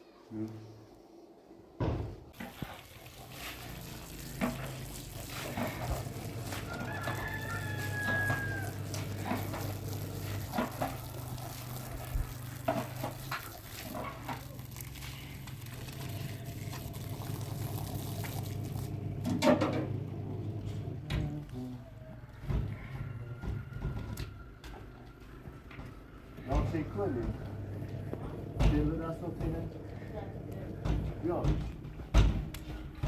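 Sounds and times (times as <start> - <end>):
rooster crowing: 5.7 - 11.8, 21.8 - 26.5
knocks and clatter: 30.7 - 33.0.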